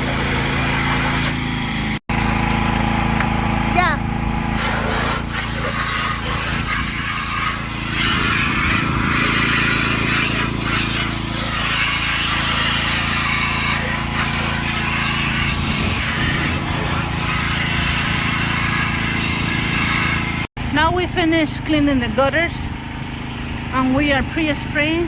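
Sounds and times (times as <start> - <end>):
small engine running: 0.0 - 25.0
rough scraping and rubbing: 3.8 - 20.5.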